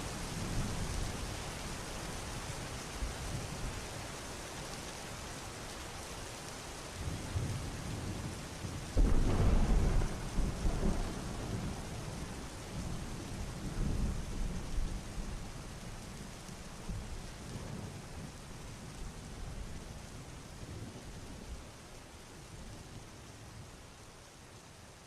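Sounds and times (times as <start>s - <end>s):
heavy rain: 0.0s - 25.0s
thunder clap and rumble: 9.0s - 15.4s.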